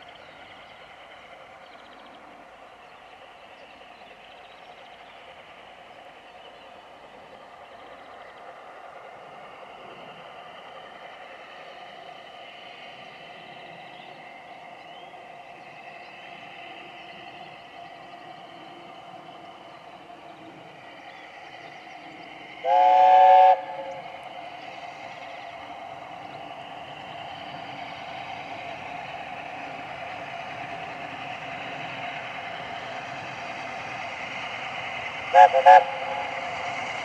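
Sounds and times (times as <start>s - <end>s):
running train noise: 0.0s - 37.0s
steam locomotive chime whistle: 22.6s - 24.2s, 35.3s - 36.5s.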